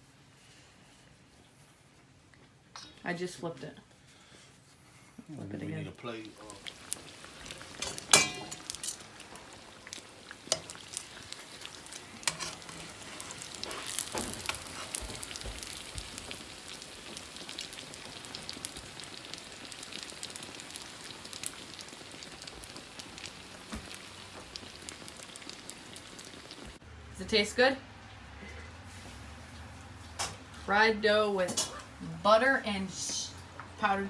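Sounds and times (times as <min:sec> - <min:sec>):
dough sizzling in hot oil: 0:06.0 - 0:27.6.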